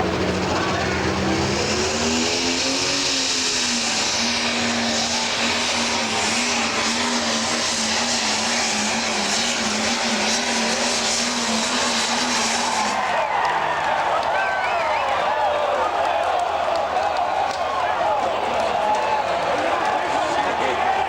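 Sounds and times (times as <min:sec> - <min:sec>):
diesel engine running hard: 0:00.0 - 0:15.0
loud hissing rush: 0:00.4 - 0:13.0.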